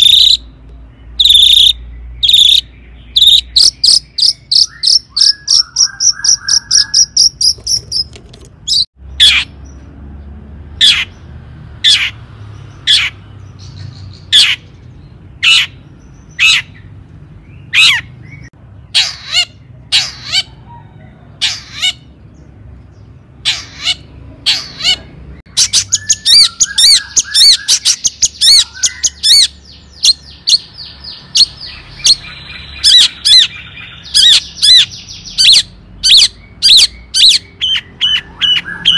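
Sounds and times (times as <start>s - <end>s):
shrike singing: 0.0s - 9.6s.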